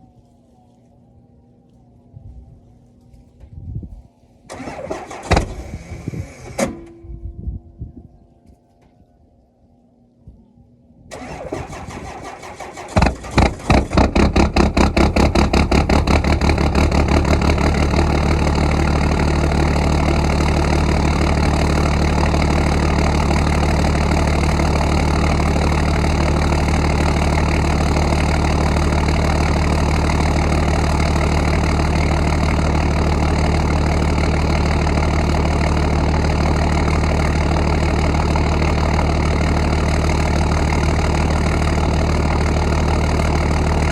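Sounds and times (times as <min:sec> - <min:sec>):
starter motor cranking: 0:04.5 - 0:06.6, 0:11.1 - 0:16.3
diesel engine idling: 0:11.1 - 0:43.9.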